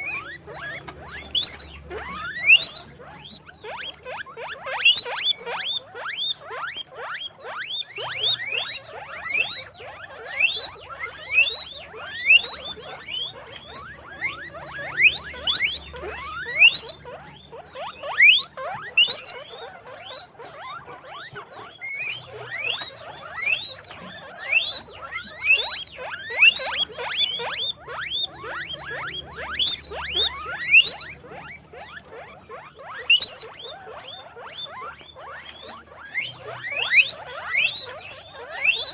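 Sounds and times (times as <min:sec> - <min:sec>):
guinea pigs wheeking: 0:00.0 - 0:38.9.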